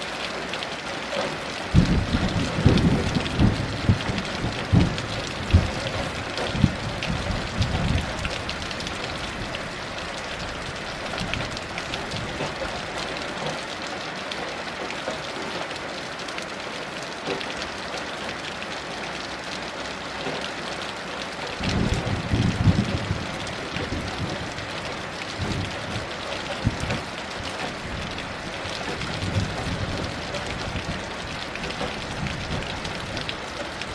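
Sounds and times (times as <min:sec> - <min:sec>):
heavy rain falling: 0:00.0 - 0:33.9
distant thunder rumbling: 0:01.7 - 0:09.5, 0:21.6 - 0:28.2.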